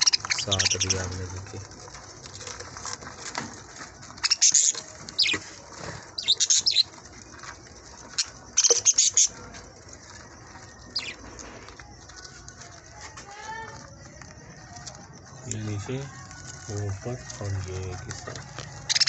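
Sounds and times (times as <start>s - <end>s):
budgerigars chirping: 0.0s - 1.2s, 4.2s - 5.5s, 6.2s - 7.0s, 8.0s - 9.4s, 10.9s - 11.2s, 18.8s - 19.0s.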